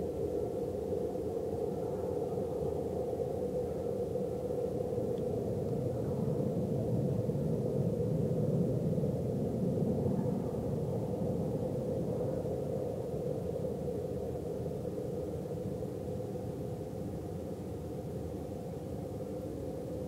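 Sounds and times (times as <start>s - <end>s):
low drone from the sky: 0.0s - 20.0s.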